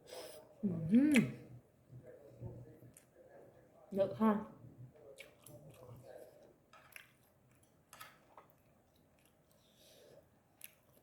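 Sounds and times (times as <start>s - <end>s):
faint chewing: 4.9s - 11.0s.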